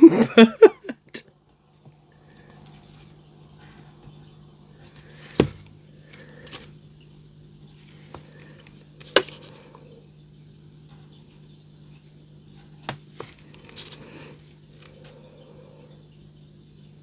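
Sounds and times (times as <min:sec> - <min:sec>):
faint low hum: 0:00.0 - 0:17.0
soft rustle: 0:01.5 - 0:06.8, 0:11.3 - 0:15.3.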